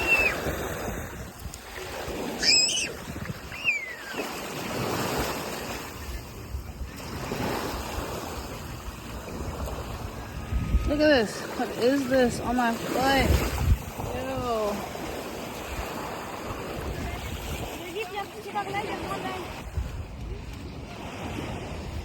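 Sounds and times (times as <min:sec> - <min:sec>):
ocean surf washing ashore: 0:00.0 - 0:22.0
wind buffeting microphone: 0:00.0 - 0:22.0
brief high cries: 0:02.4 - 0:04.2.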